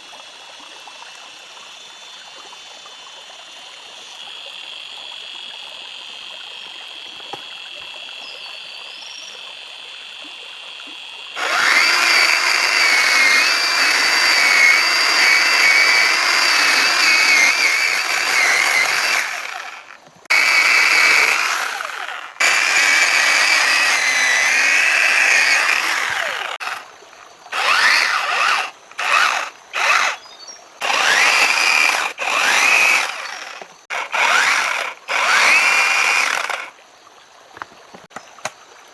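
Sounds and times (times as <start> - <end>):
power tool whining: 11.3 - 26.9, 27.5 - 36.7.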